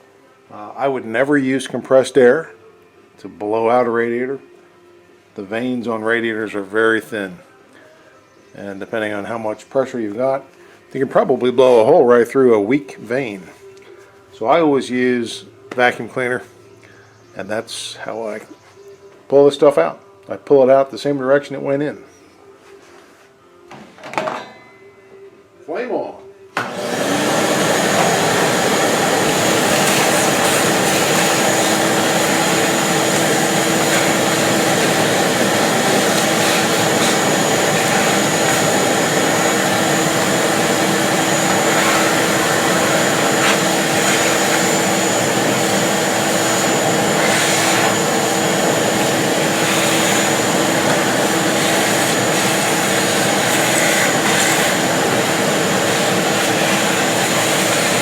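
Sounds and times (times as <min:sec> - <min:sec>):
vacuum cleaner whining: 0:26.6 - 0:58.0.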